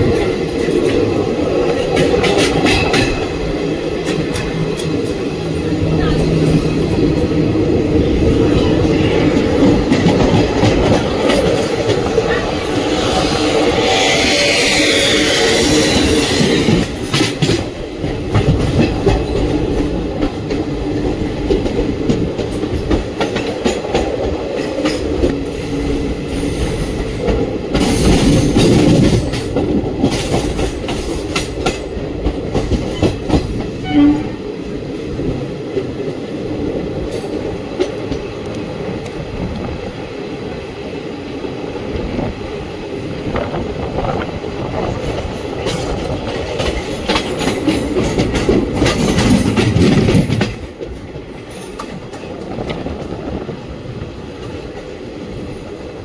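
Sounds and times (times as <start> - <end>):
rush of train noise: 0.0 - 56.0
train coaches rumbling: 0.0 - 56.0
wheels clattering over rail joints: 44.8 - 53.1.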